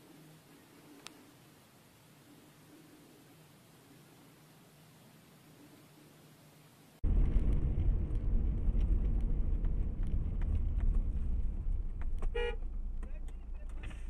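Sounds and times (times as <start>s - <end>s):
car driving rumble from inside: 7.1s - 14.0s.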